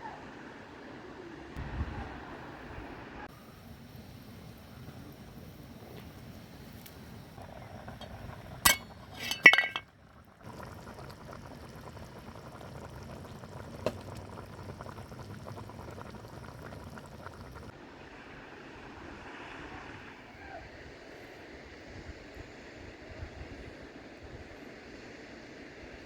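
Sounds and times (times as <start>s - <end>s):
glass clinks: 8.7s - 9.8s.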